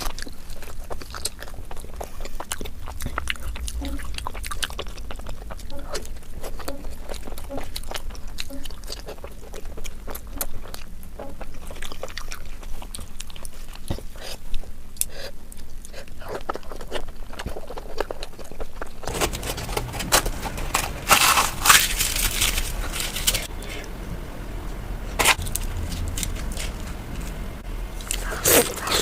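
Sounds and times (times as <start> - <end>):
crunchy chewing: 0.0 - 29.0
crackling burst: 19.1 - 29.0.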